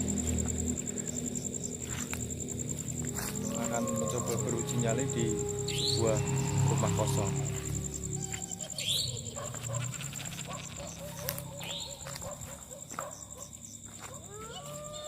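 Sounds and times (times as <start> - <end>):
rising tones: 0.0 - 9.3
insects trilling: 0.0 - 15.0
short repeated calls: 3.1 - 9.3.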